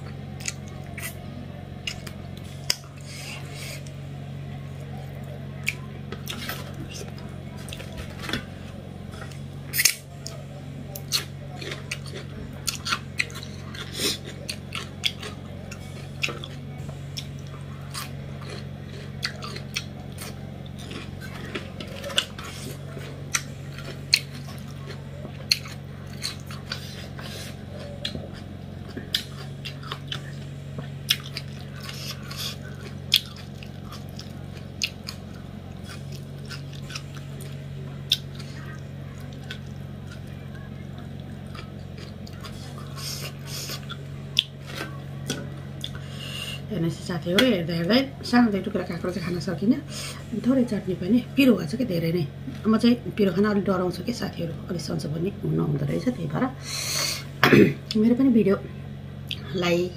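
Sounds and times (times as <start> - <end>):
person chewing food: 0.0 - 46.7, 59.2 - 59.5
steady low hum: 0.0 - 59.9.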